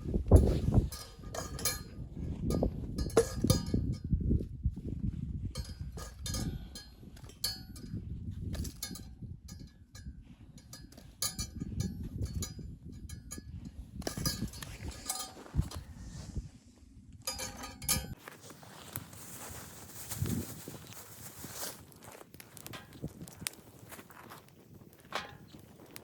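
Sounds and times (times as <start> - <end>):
clinks and knocks: 0.1 - 4.2, 5.4 - 15.9, 17.2 - 18.2, 25.0 - 26.0.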